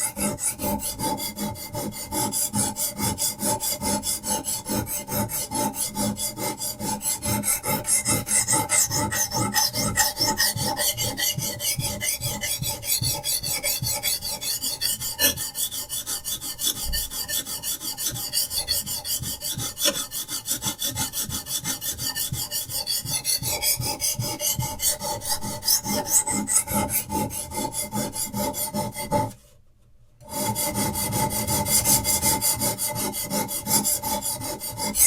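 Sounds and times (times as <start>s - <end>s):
sharpening stone rasping on knife: 0.0s - 29.2s.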